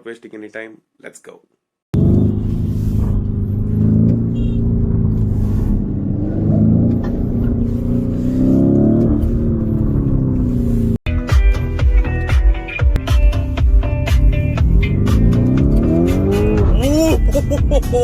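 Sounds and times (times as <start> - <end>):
vehicle engine revving: 1.9 - 11.0, 13.9 - 17.8.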